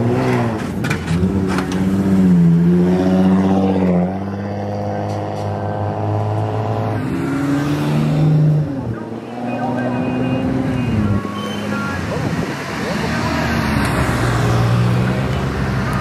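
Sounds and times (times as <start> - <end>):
car engines idling: 4.0 - 16.0.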